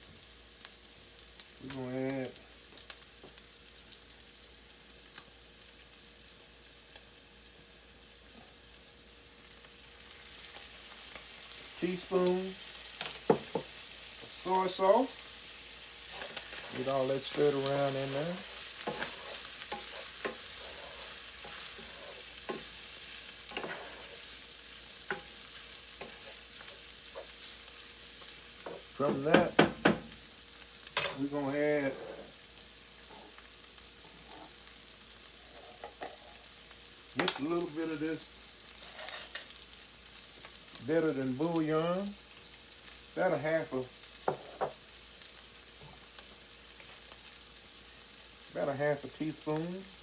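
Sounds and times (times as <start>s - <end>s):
stir-fry sizzling in oil: 0.0s - 50.0s
utensil scraping a pan: 16.0s - 24.4s, 26.0s - 27.4s, 31.8s - 32.4s, 35.4s - 36.5s, 38.8s - 39.5s.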